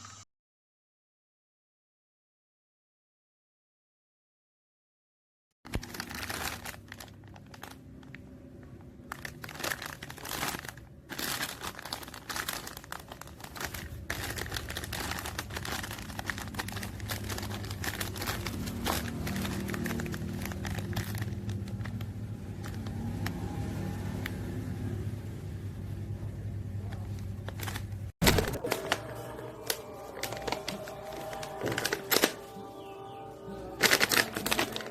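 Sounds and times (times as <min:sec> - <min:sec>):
plastic packaging crinkling: 0:05.7 - 0:24.2, 0:27.4 - 0:34.9.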